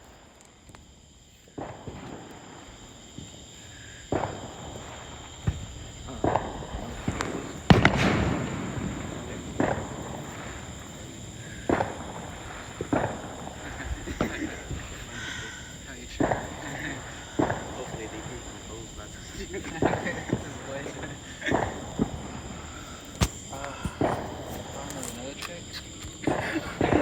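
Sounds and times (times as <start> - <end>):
fireworks bangs: 0.0 - 27.0
fireworks crackling: 0.0 - 27.0.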